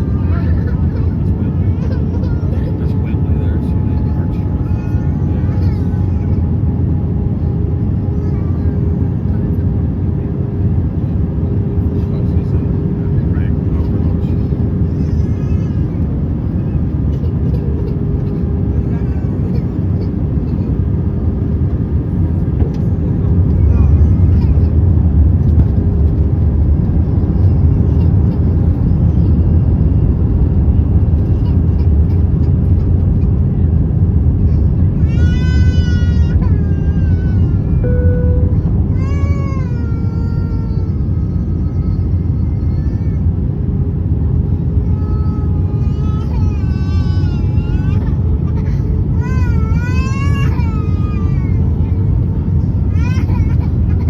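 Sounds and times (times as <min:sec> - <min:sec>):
airplane cabin rumble: 0:00.0 - 0:54.0
faint steady hum: 0:37.3 - 0:42.4.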